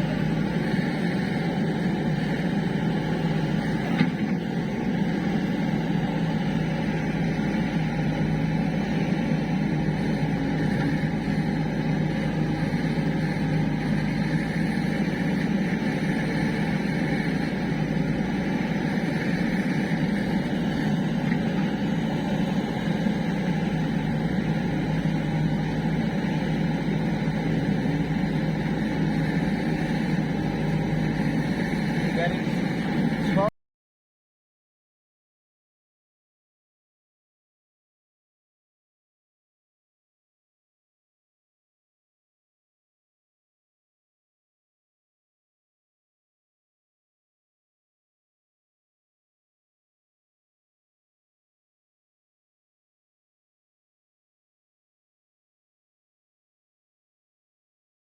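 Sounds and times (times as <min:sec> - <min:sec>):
diesel machine engine running: 0:00.0 - 0:33.5.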